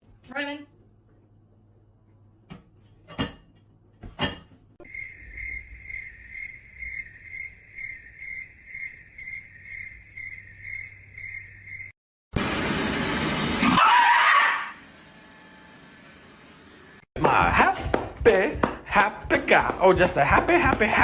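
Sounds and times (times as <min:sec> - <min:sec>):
cricket chirping: 0:04.8 - 0:12.0.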